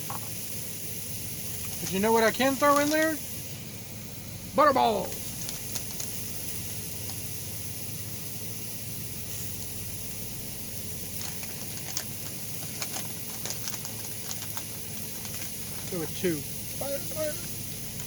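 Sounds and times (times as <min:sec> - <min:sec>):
vegetables sizzling in oil: 0:00.0 - 0:18.0
oil pops and crackles: 0:01.4 - 0:03.4, 0:05.0 - 0:07.4, 0:10.8 - 0:18.0.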